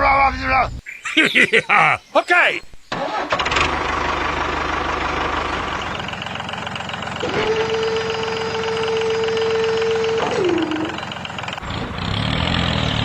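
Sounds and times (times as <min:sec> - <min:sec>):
small tractor engine running: 0:02.9 - 0:13.0
steady single tone: 0:07.2 - 0:11.4.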